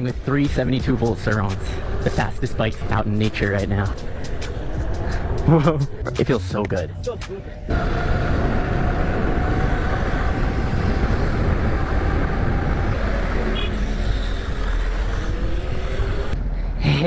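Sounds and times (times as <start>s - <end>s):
wind and road noise: 0.0s - 17.0s
electric motor whine: 7.7s - 16.4s.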